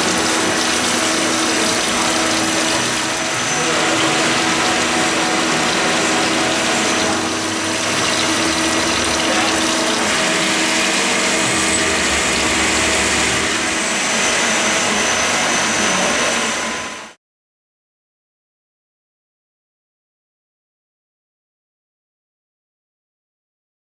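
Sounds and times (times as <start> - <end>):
faint high whine: 0.0 - 17.2
lathe motors and pumps humming: 0.0 - 17.2.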